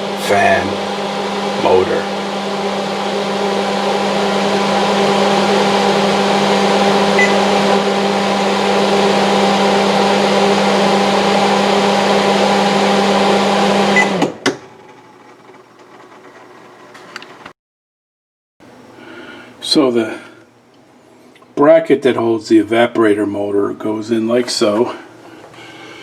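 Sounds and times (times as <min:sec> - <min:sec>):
fan motor humming: 0:00.0 - 0:17.5, 0:18.6 - 0:26.0.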